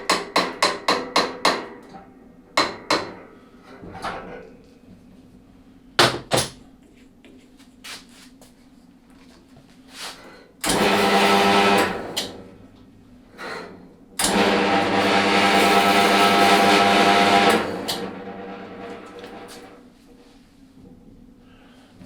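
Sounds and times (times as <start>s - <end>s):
metal-cutting bandsaw running: 10.6s - 12.5s, 14.2s - 19.8s.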